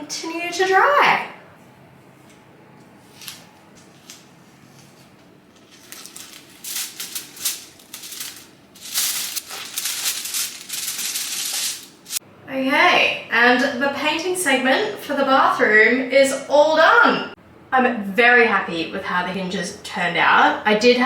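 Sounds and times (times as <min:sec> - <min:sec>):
masking tape being peeled: 0:05.5 - 0:12.2.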